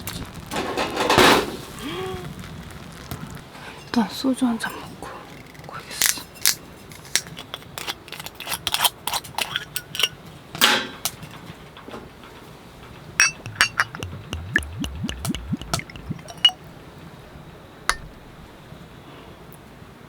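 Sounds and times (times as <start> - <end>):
glass and bottle clinking: 13.2 - 16.6
liquid glugging into a glass: 13.2 - 16.6.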